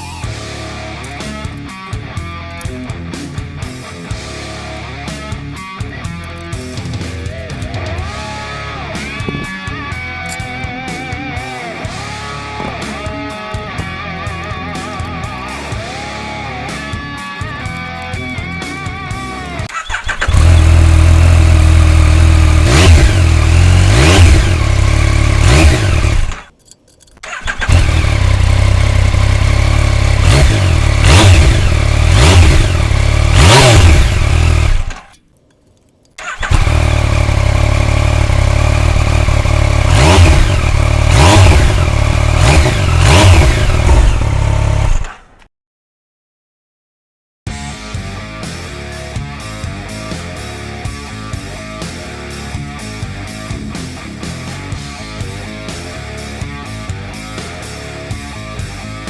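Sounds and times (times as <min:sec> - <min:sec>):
motorcycle engine idling and blipping: 0:00.0 - 0:35.3, 0:36.2 - 0:45.5.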